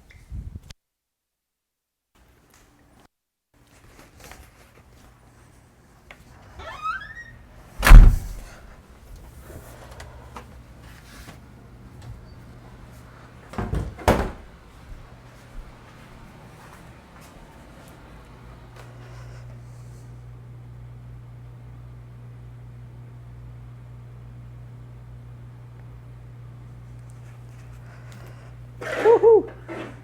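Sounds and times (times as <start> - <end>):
door creaking open: 6.6 - 8.6
door shutting thud: 6.6 - 8.6
knocking on door: 7.8 - 8.4
steady low hum: 7.8 - 8.6.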